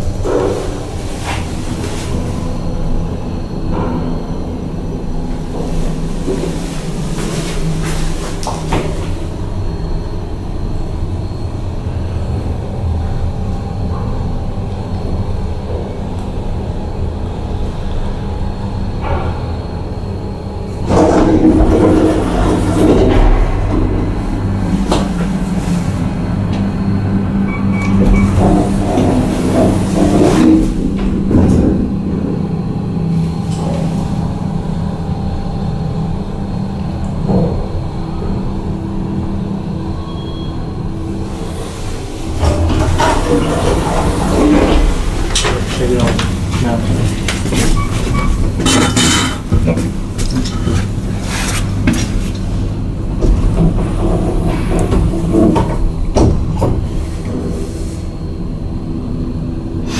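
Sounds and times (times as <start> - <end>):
elevator hum and rumble: 0.0 - 59.9
knocks and clatter: 20.8 - 32.1, 41.4 - 57.7.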